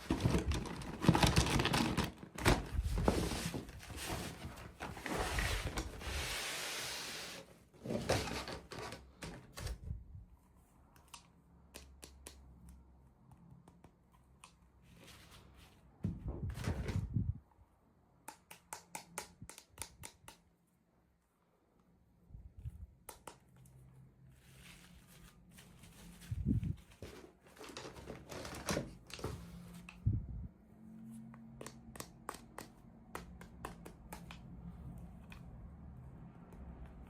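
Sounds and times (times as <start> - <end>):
packaging rustling: 0.0 - 6.1.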